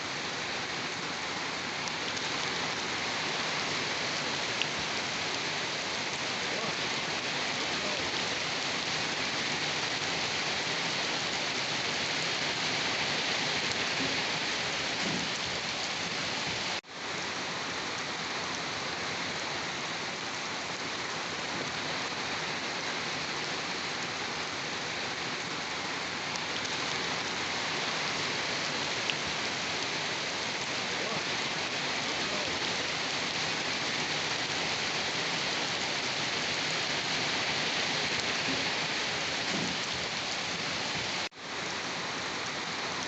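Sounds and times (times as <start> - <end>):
steady rain pattering: 0.0 - 43.0.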